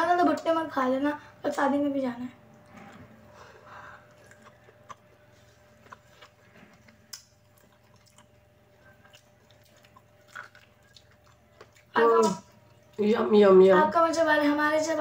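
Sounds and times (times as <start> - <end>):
low steady hum: 0.0 - 15.0
person chewing corn: 3.7 - 12.0.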